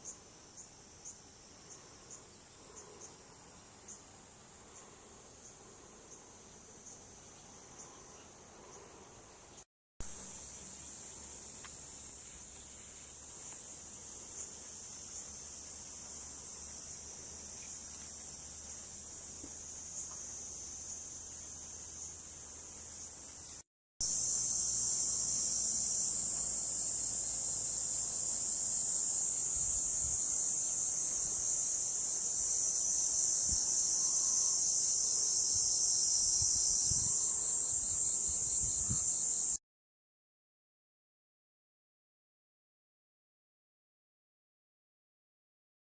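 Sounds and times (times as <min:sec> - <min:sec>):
high-pitched insect chorus: 0:00.0 - 0:39.6.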